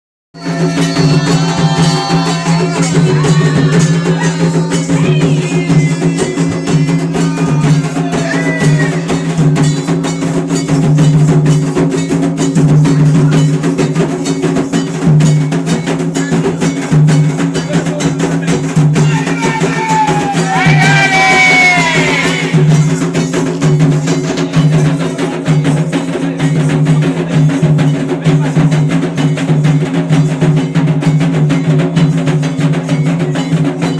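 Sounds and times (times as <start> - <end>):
voices singing: 0.4 - 10.8, 17.6 - 23.3
hand drums playing: 0.4 - 33.9
sharp clacking percussion: 0.4 - 33.9.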